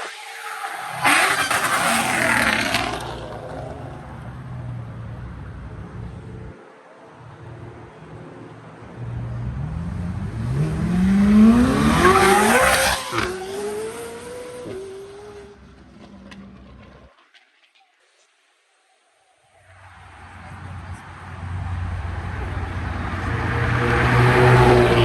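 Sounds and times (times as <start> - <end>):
car engine revving past: 0.0 - 4.9, 9.0 - 17.1, 20.4 - 25.0.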